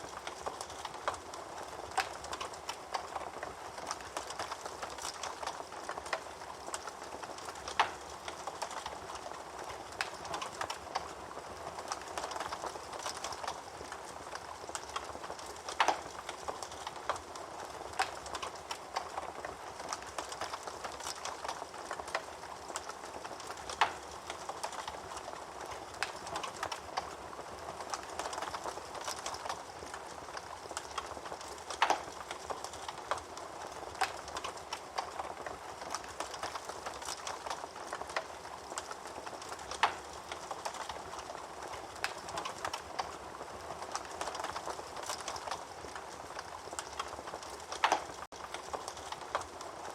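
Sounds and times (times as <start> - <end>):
wood fire crackling: 0.0 - 49.9
fire loud snaps: 14.7 - 17.2, 27.8 - 43.2, 43.9 - 49.5.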